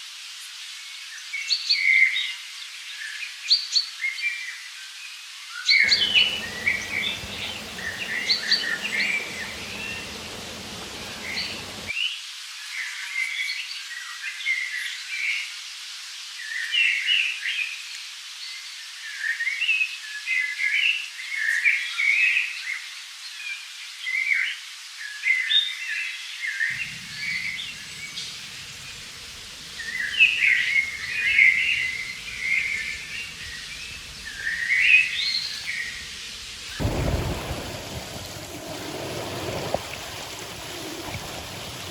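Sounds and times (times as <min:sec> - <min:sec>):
songbirds chirping: 0:05.8 - 0:11.9, 0:26.7 - 0:41.9
faint background hiss: 0:26.7 - 0:41.9.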